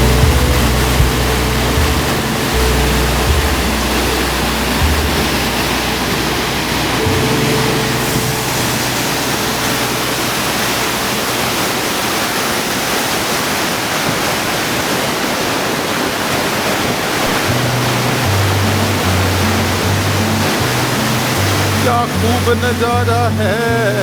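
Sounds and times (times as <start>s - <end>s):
low held background music notes: 0.0s - 12.2s, 17.4s - 24.0s
waterfall rushing over rocks: 0.0s - 24.0s.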